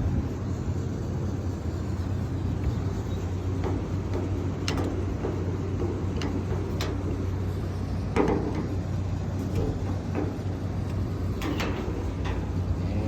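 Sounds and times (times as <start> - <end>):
low mechanical hum: 0.0 - 13.0
metal panel clicks: 3.5 - 12.9.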